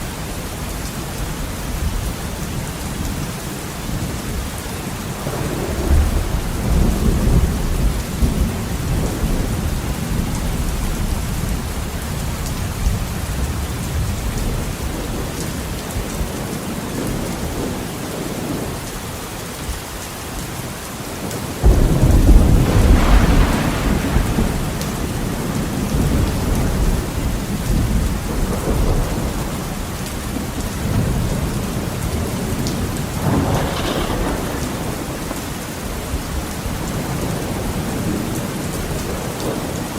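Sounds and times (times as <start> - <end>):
heavy rain on a window: 0.0 - 39.9
thunder rumbling: 3.9 - 18.7, 21.3 - 39.9
loud thunder crack: 5.2 - 10.6, 21.6 - 29.6, 32.2 - 35.6.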